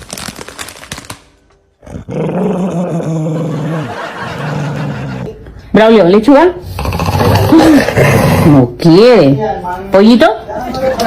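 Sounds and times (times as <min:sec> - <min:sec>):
dog growling: 0:01.8 - 0:05.3, 0:06.6 - 0:08.8.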